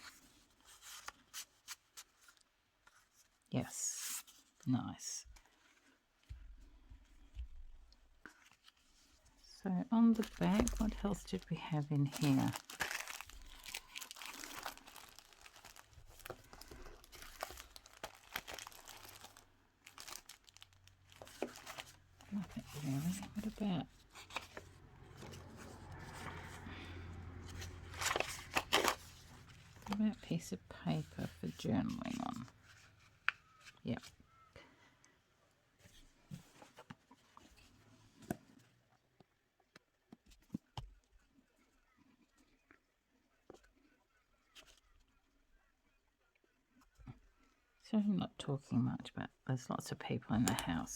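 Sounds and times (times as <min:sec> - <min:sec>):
paper rustling and crinkling: 0:00.0 - 0:04.6, 0:07.3 - 0:26.7, 0:27.3 - 0:34.5, 0:35.8 - 0:38.7.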